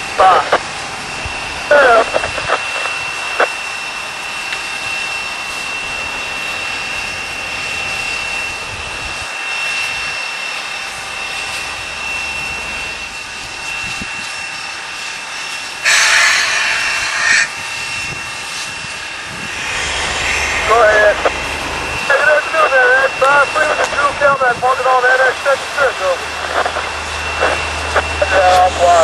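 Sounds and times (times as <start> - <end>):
thin high whine: 9.8 - 29.0
steam locomotive hissing: 14.2 - 24.8.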